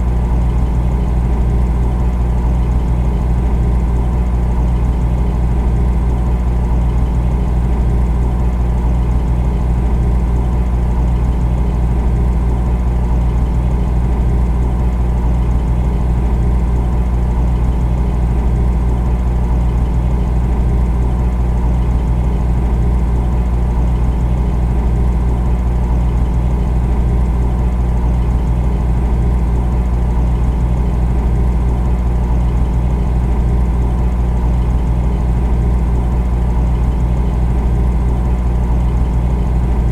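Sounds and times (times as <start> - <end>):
refrigerator hum: 0.0 - 39.9.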